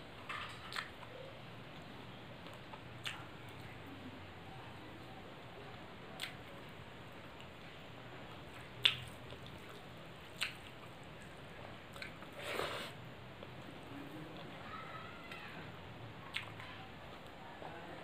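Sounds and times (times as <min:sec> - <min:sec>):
wet mouth clicks while chewing: 0:02.4 - 0:03.3, 0:06.2 - 0:06.4, 0:08.8 - 0:09.6, 0:10.4 - 0:10.8, 0:11.9 - 0:12.3.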